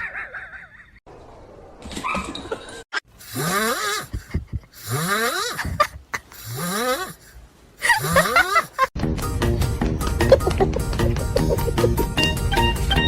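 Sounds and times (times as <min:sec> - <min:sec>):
music: 0:09.0 - 0:13.0.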